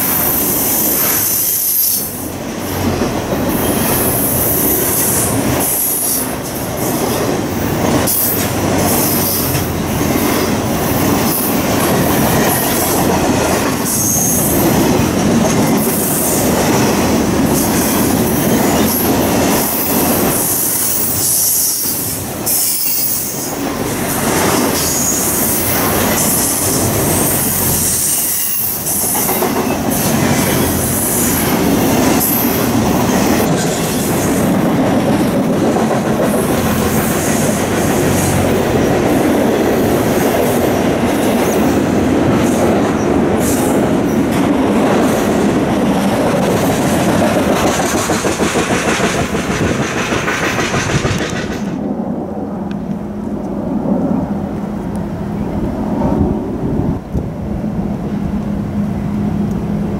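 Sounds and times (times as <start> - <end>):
wheels squealing on rails: 0.0 - 51.8
train rolling past: 0.0 - 59.9
wheels clattering over rail joints: 44.1 - 51.8.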